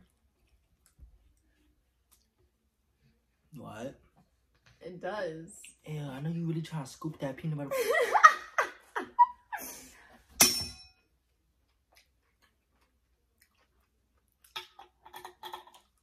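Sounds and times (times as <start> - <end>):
person chewing: 11.6 - 16.0.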